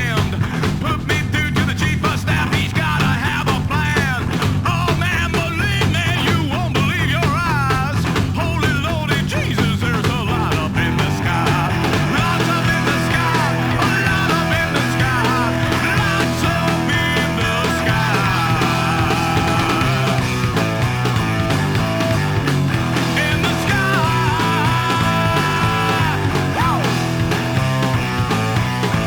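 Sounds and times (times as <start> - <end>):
bending electric guitar lead: 0.0 - 29.0
rockabilly rock band playing: 0.0 - 29.0.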